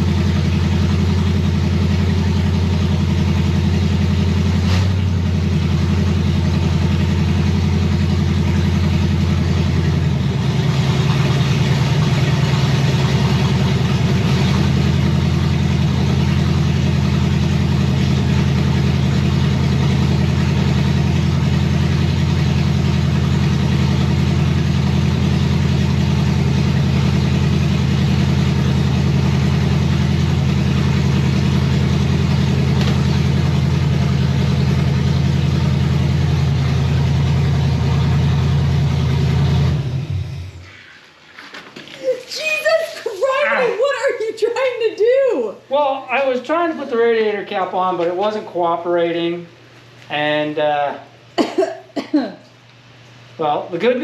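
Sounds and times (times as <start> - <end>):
car engine idling: 0.0 - 41.4.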